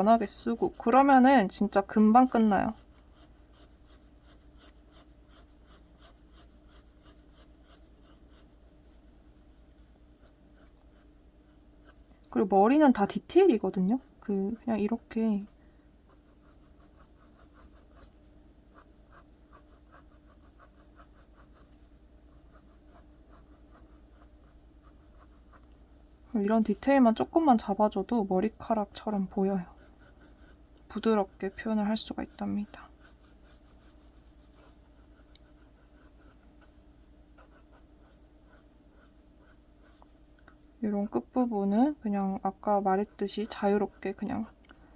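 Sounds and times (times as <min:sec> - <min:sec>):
pencil scratching on paper: 0:00.0 - 0:08.6, 0:16.1 - 0:18.2, 0:18.8 - 0:25.6, 0:28.8 - 0:36.8, 0:37.4 - 0:40.1, 0:41.7 - 0:44.6.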